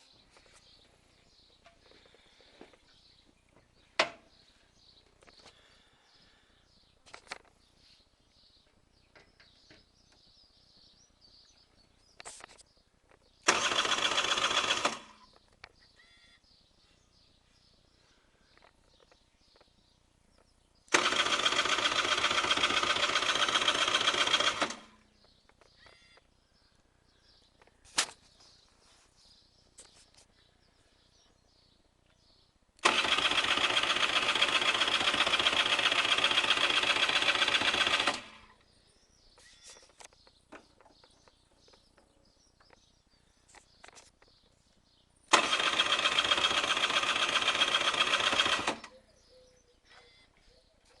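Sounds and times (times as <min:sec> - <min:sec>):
electric starter cranking engine: 0:13.4 - 0:15.3, 0:20.9 - 0:25.0, 0:32.8 - 0:38.6, 0:45.3 - 0:49.0.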